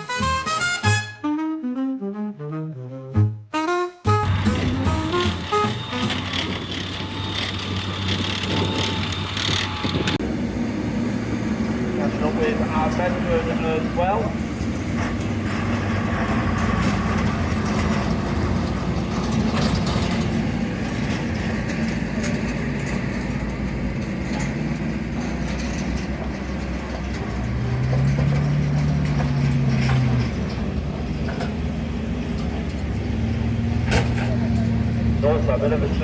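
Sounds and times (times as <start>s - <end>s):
mechanical clanks and rattles: 4.2s - 10.2s, 14.3s - 35.0s
engine revving: 4.2s - 36.0s
military vehicle engines running: 4.2s - 36.0s.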